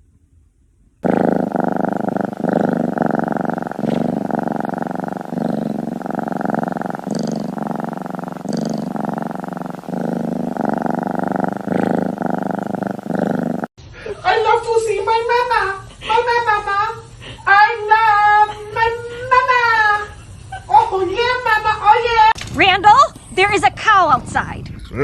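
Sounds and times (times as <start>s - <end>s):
cat purring: 1.0s - 13.8s.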